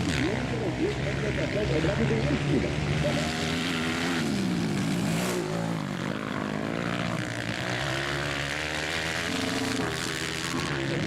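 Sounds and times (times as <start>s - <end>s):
racing motorcycles revving: 0.0s - 11.0s.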